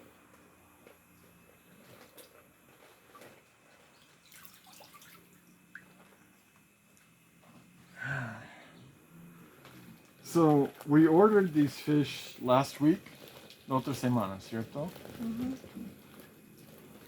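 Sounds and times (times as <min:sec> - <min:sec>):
faint water drips and trickles: 0:03.1 - 0:06.2.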